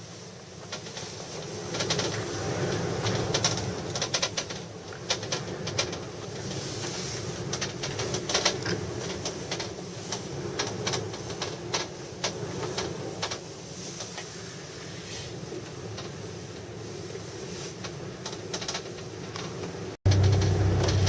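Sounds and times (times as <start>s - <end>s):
gondola cabin creaking: 0.0s - 21.0s
low rumble: 20.1s - 21.0s.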